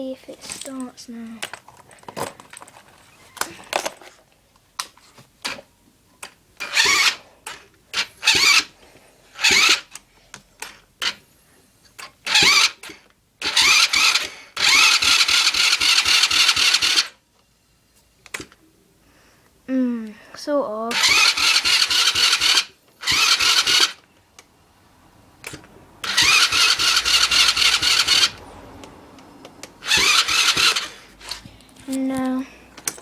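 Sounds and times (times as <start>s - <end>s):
electric starter cranking engine: 6.6s - 8.8s, 9.4s - 10.0s, 10.6s - 11.2s, 12.0s - 17.2s, 20.9s - 24.1s, 25.4s - 31.5s.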